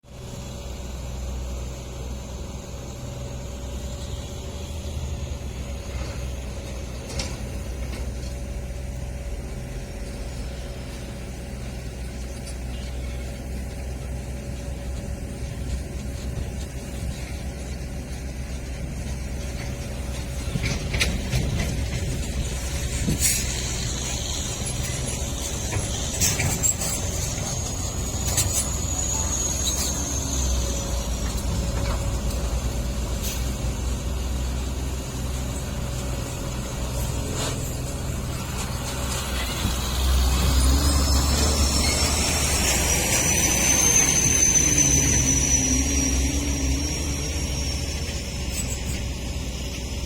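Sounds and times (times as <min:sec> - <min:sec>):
diesel truck engine running: 0:00.0 - 0:50.0
metal clanks: 0:19.6 - 0:30.0
high squeal: 0:21.9 - 0:50.0.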